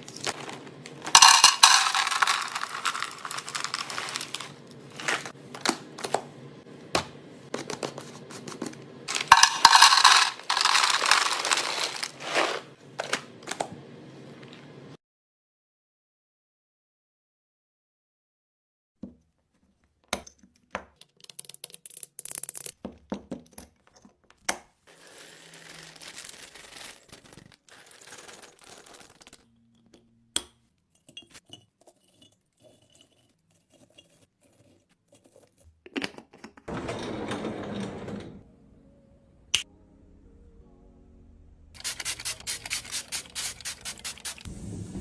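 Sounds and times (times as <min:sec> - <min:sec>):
packaging crinkling: 0:00.0 - 0:05.4, 0:09.1 - 0:12.7, 0:24.9 - 0:29.4.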